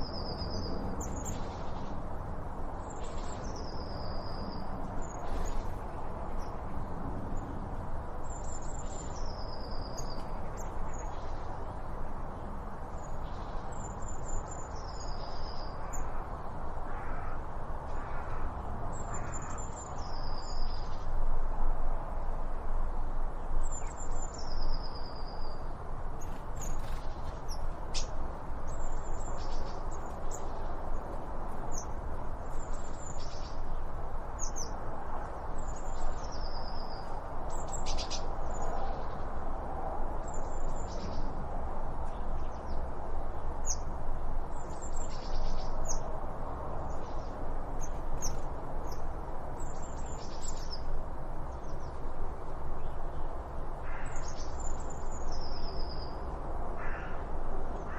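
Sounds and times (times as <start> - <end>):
small birds chirping: 0.0 - 2.0, 2.8 - 16.2, 26.2 - 39.3, 44.5 - 46.1, 46.7 - 56.2
steady background hiss: 0.0 - 57.9.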